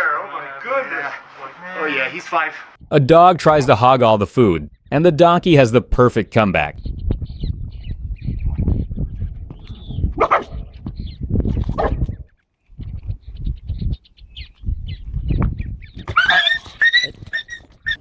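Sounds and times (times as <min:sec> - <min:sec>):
dog barking: 0:10.2 - 0:10.6, 0:11.8 - 0:12.0
donkey calling: 0:16.0 - 0:18.0.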